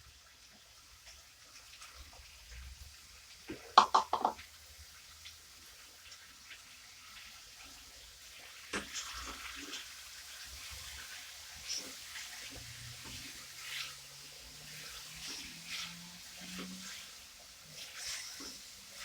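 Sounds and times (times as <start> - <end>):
utensils knocking on a pot: 3.6 - 4.4.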